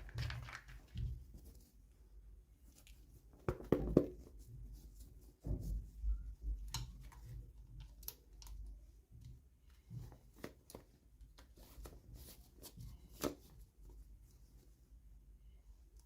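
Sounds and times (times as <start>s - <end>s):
packaging rustling: 0.0s - 1.4s
light clicks and taps: 5.6s - 11.5s.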